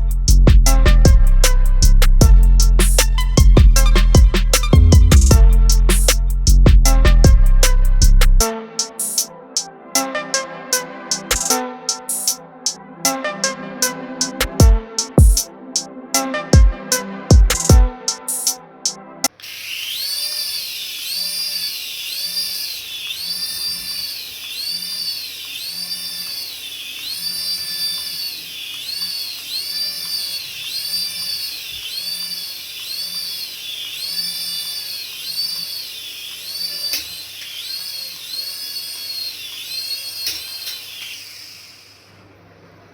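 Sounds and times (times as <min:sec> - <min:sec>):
toy warbling electronic whine: 0:02.5 - 0:06.3, 0:10.7 - 0:12.8, 0:17.5 - 0:18.6, 0:19.2 - 0:42.2.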